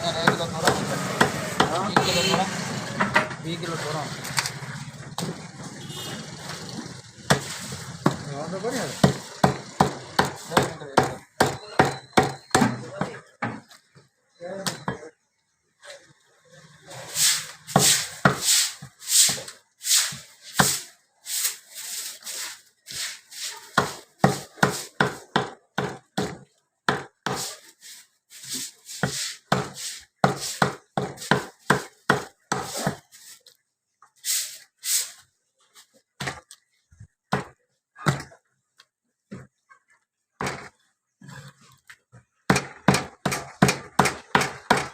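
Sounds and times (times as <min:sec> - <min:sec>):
cleaver chopping on wooden block: 0:07.3 - 0:08.2, 0:09.0 - 0:12.8, 0:23.7 - 0:27.5, 0:29.0 - 0:33.0, 0:37.3 - 0:38.4, 0:42.4 - 0:44.9.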